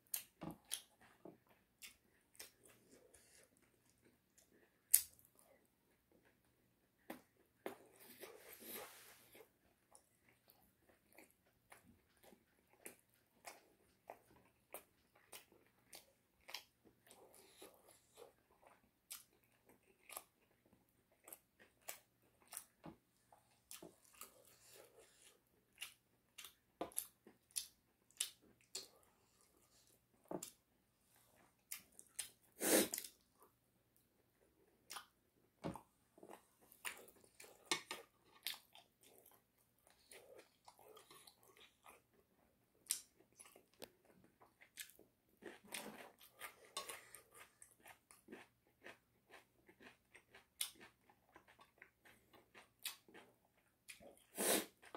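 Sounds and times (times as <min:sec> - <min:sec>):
chewing and crunching chicken: 0:00.0 - 0:35.2, 0:35.8 - 0:54.9.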